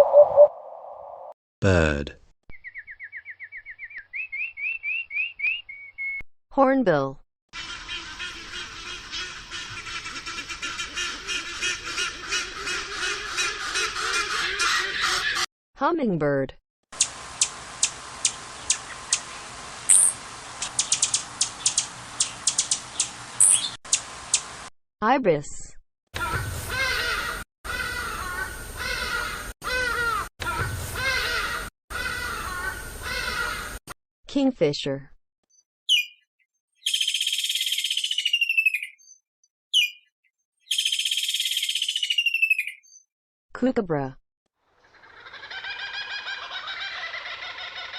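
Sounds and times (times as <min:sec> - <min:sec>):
hummingbird chip calls: 0:17.0 - 0:24.4.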